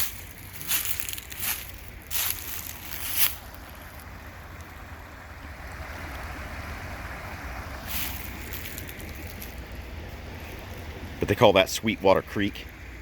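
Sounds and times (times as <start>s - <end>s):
crunch: 0.0s - 4.1s, 7.9s - 9.7s
creek water flowing: 0.0s - 13.0s.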